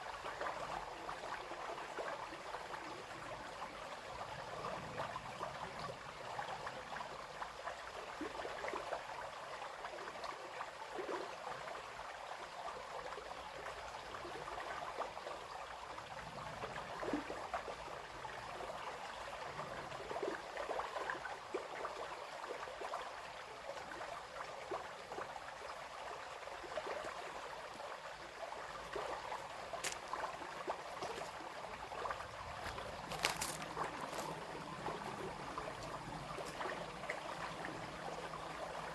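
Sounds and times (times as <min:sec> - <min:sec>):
brook babbling: 0:00.0 - 0:38.9.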